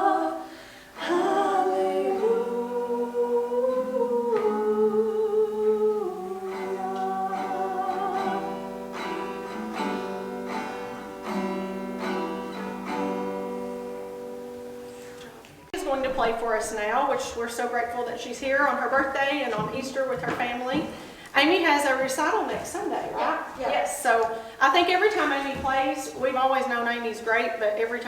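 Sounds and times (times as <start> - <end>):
acoustic guitar plucked notes: 0.0 - 18.0.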